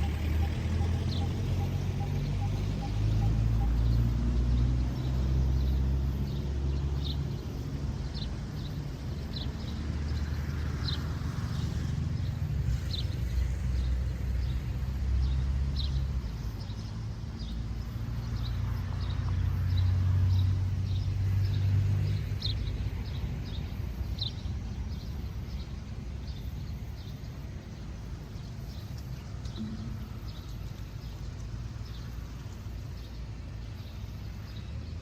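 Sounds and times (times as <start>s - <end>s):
steady low rumble: 12.0s - 35.0s.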